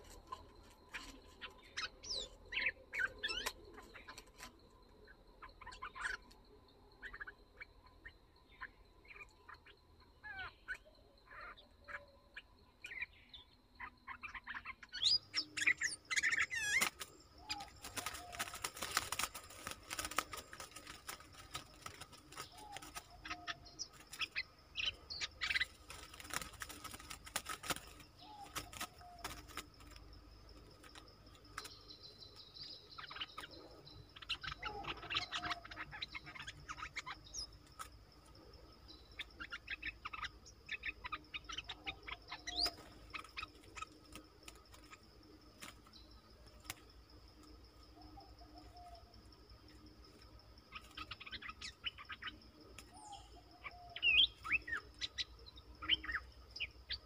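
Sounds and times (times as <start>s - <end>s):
bird chirping and warbling: 0.0s - 6.3s, 7.0s - 37.9s, 38.7s - 45.1s, 47.9s - 57.0s
faint insect buzz: 14.9s - 57.0s.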